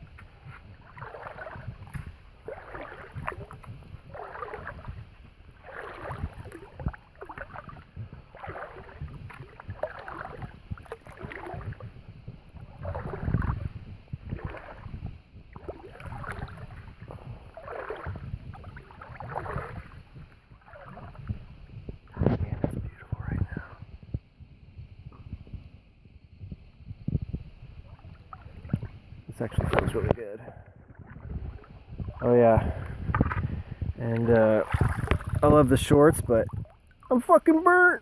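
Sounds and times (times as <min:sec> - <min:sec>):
footsteps wading through water: 0:00.0 - 0:23.9, 0:27.2 - 0:38.0
wind on microphone: 0:00.0 - 0:38.0.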